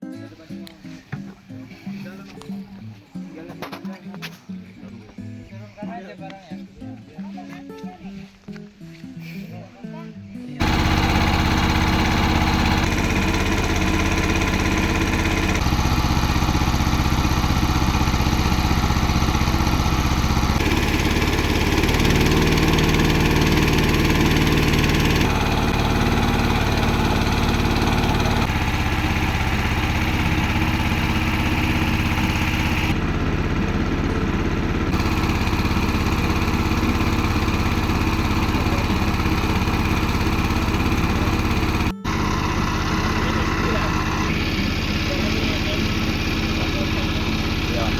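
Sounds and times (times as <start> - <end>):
boat motor running: 10.6 - 47.9.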